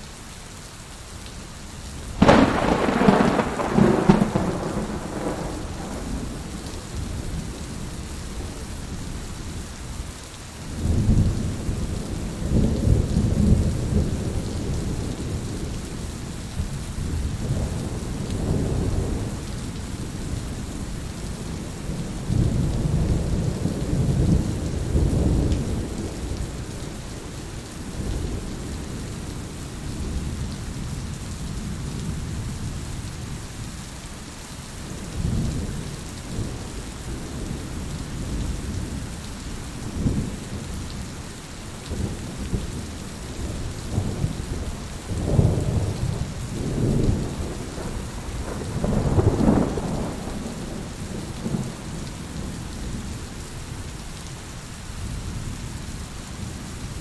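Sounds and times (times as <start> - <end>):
steady rain falling: 0.0 - 57.0
rolling thunder: 2.2 - 8.5, 41.9 - 53.2.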